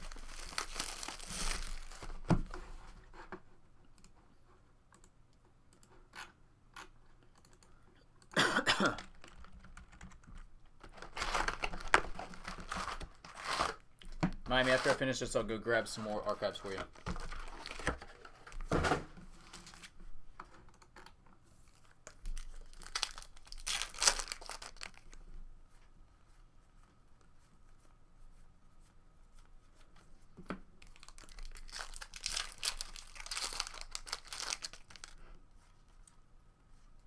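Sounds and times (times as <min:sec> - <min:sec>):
wrappers tearing and crinkling: 0:00.0 - 0:02.2, 0:10.9 - 0:13.8, 0:21.7 - 0:25.2, 0:30.8 - 0:35.2.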